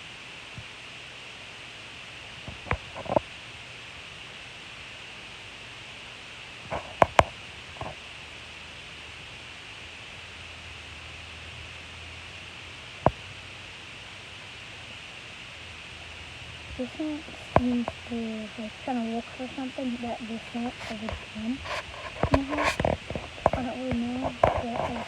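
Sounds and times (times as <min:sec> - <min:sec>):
steady background hiss: 0:00.0 - 0:25.0.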